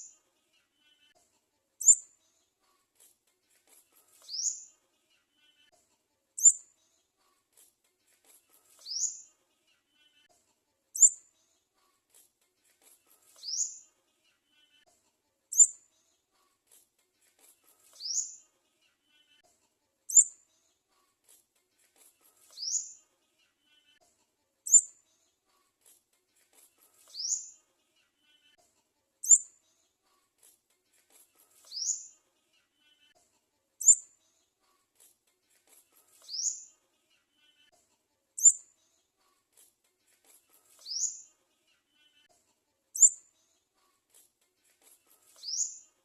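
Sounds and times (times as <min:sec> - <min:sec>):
bird sharp chirp: 0:01.8 - 0:02.0, 0:11.0 - 0:11.2, 0:15.5 - 0:15.8.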